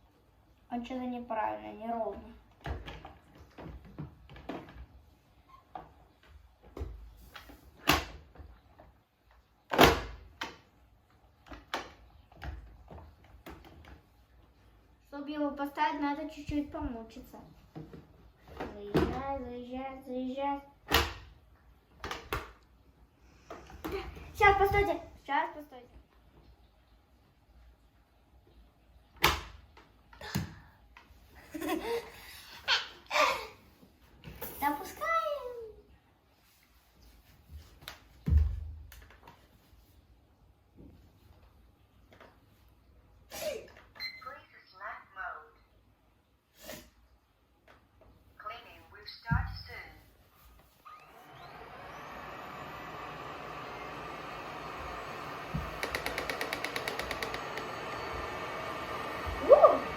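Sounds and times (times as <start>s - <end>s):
plastic knocks and clicks: 55.6s - 57.8s.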